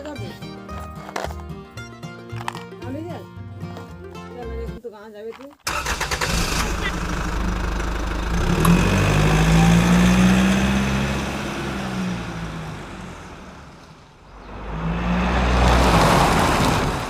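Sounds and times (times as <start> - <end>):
small tractor engine running: 5.7 - 14.2.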